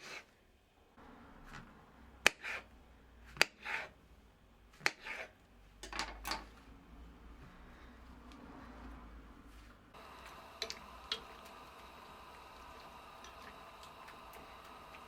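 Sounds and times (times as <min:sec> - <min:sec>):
soft scrape or rustle: 0:08.5 - 0:09.9.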